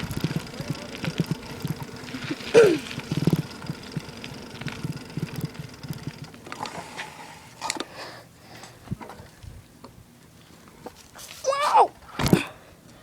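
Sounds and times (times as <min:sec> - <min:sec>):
bicycle rattling over bumpy ground: 0:00.0 - 0:07.9.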